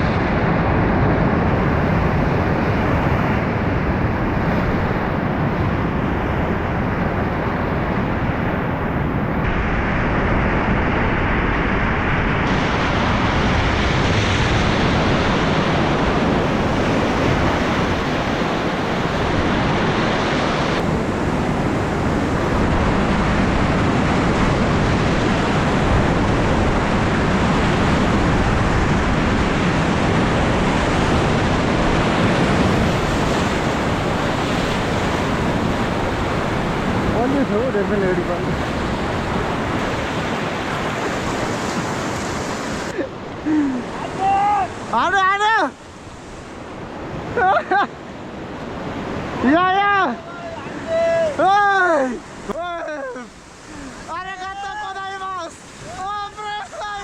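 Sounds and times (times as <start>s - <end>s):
wind buffeting microphone: 0.0s - 57.0s
river rapids rushing: 12.5s - 57.0s.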